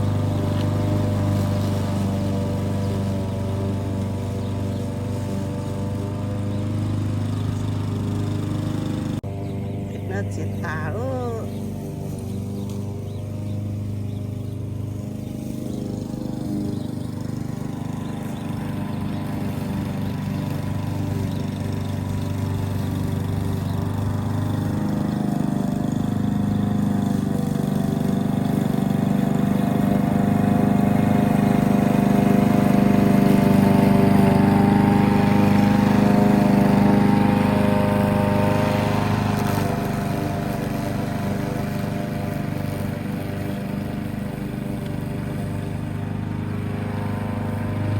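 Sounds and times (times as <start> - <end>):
lawn mower engine running: 0.0 - 47.9.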